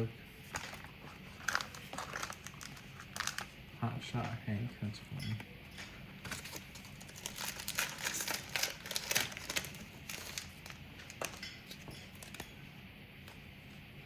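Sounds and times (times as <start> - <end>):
cards clicking and rustling: 0.4 - 3.6, 6.2 - 12.6.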